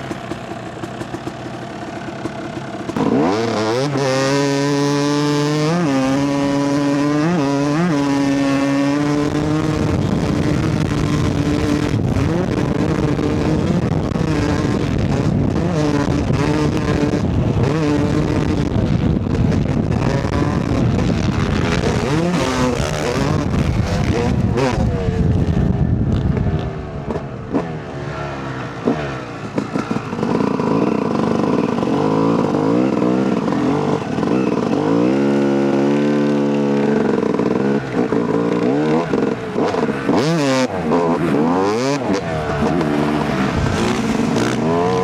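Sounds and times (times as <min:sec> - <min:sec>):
dirt bike engine revving: 0:00.0 - 0:45.0
wind noise: 0:04.7 - 0:27.8, 0:38.1 - 0:45.0.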